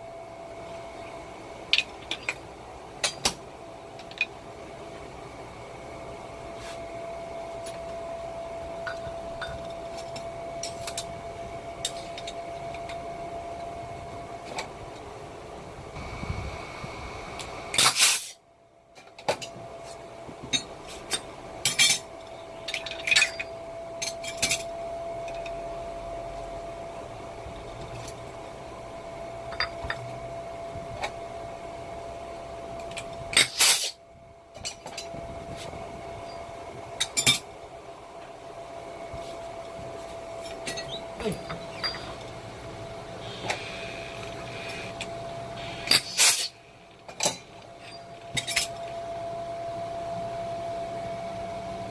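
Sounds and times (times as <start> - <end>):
faint steady whine: 0.0 - 51.9
metal parts and tools clinking: 20.5 - 22.1, 22.7 - 25.6, 32.8 - 34.0, 40.4 - 42.3, 45.8 - 46.5, 47.1 - 48.8.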